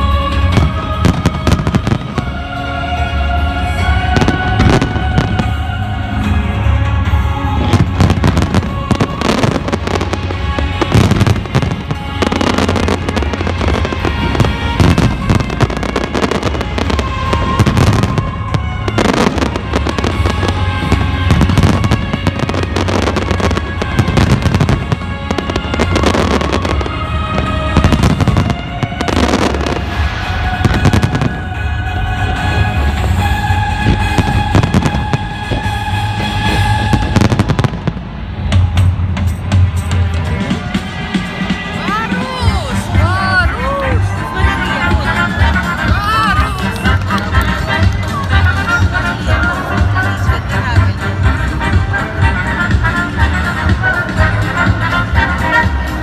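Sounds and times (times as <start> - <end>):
loud music: 0.0 - 56.0
fireworks bursting: 7.6 - 50.9.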